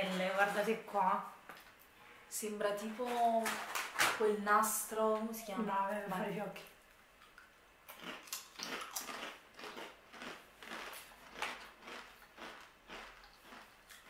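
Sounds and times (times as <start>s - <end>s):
crunching crisp snack: 7.9s - 14.0s.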